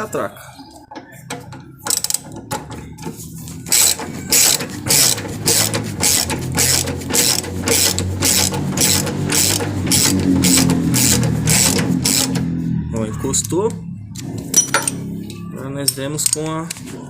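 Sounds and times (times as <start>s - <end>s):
ratchet wrench clicking: 1.8s - 2.7s, 3.7s - 12.5s, 14.5s - 16.8s.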